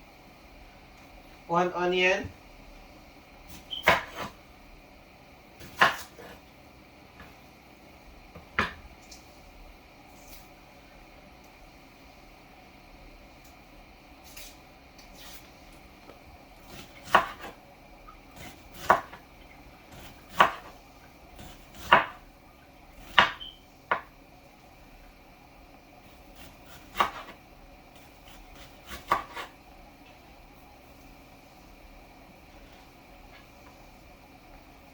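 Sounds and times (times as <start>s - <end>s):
knife chopping on cutting board: 3.5s - 4.4s, 5.6s - 6.4s, 16.7s - 17.6s, 18.4s - 19.2s, 19.9s - 20.8s, 21.4s - 22.2s, 23.0s - 24.1s, 26.1s - 27.4s, 28.0s - 29.6s.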